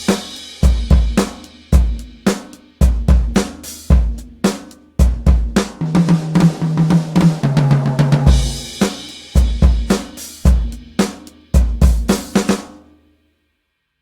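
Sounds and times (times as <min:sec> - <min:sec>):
tom drum fill: 0:00.0 - 0:12.6
kick and snare drum beat: 0:00.0 - 0:12.9.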